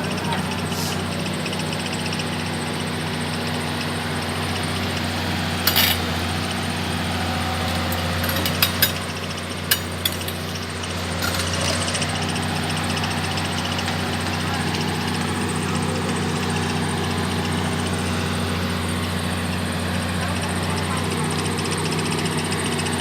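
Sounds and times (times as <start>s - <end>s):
heavy vehicle engine running: 0.0s - 23.0s
sharp metal clanks: 5.6s - 6.2s, 7.6s - 12.0s.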